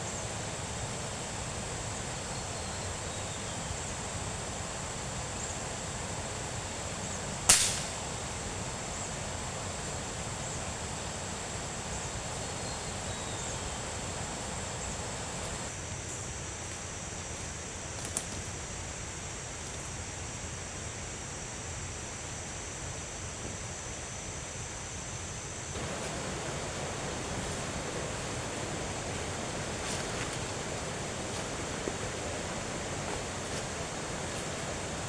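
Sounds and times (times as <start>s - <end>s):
steady high hiss: 0.0s - 35.0s
small click: 7.5s - 8.0s, 18.0s - 18.4s
sharp crack: 7.5s - 8.1s.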